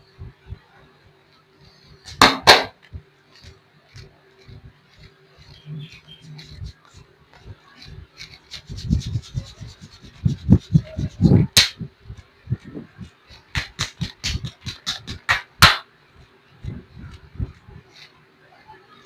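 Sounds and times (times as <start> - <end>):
hands rubbing oiled skin: 3.3 - 15.6.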